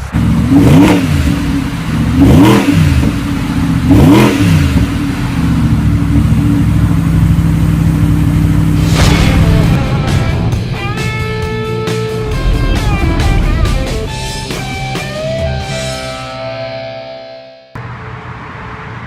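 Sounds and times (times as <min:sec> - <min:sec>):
car engine idling: 0:00.0 - 0:16.3
sports car engine revving: 0:00.1 - 0:09.0.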